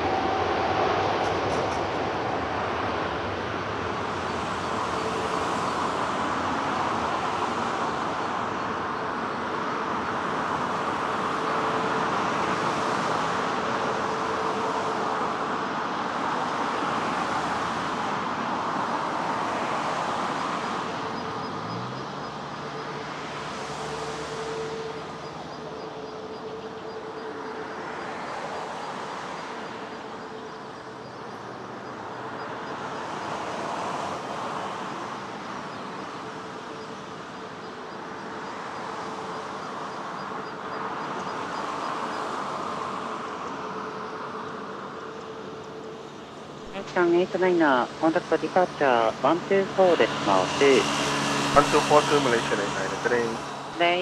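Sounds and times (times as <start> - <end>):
jet engine roar: 0.0 - 8.3, 46.4 - 54.0.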